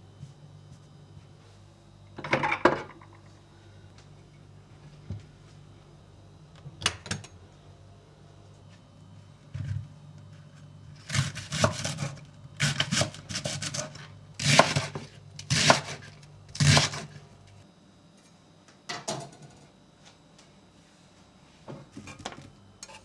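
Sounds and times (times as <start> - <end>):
low steady hum: 0.0 - 23.0
sharp kitchen knocks and clinks: 18.9 - 19.6.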